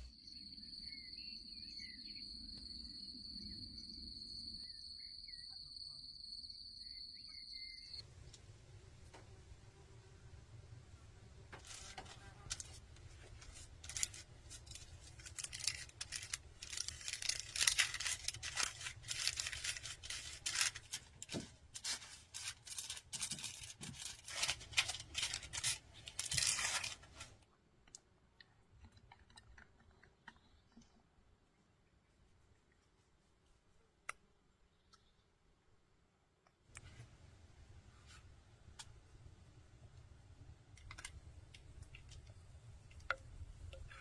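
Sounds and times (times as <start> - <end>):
food tearing and rustling: 11.6 - 27.4.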